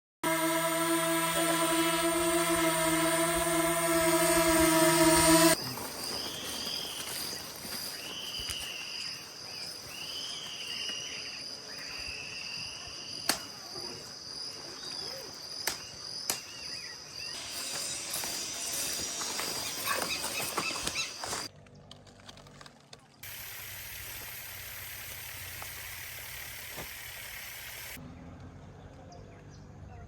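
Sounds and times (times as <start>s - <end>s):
droning hum with overtones: 0.2s - 5.6s
high insect trill: 0.3s - 21.5s
short arching calls: 17.4s - 21.5s.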